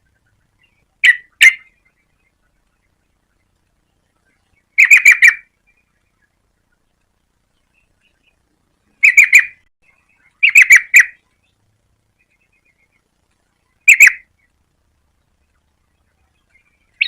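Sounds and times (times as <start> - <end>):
bird calling sharp notes: 0.1 - 3.0, 4.3 - 6.8, 9.0 - 11.5, 13.6 - 14.5.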